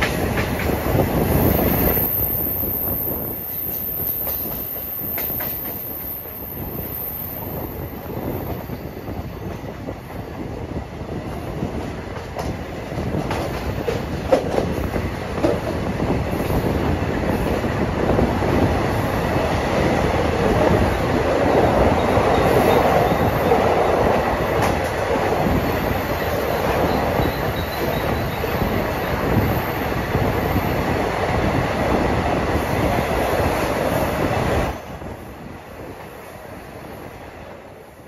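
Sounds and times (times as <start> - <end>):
train rumbling on track: 0.0 - 38.0.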